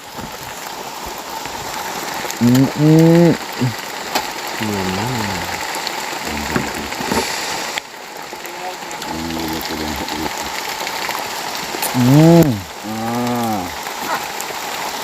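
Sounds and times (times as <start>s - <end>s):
rain hissing: 0.0s - 15.0s
man's wordless vocal sounds: 2.4s - 3.8s, 4.6s - 7.4s, 9.0s - 10.6s, 11.8s - 13.8s.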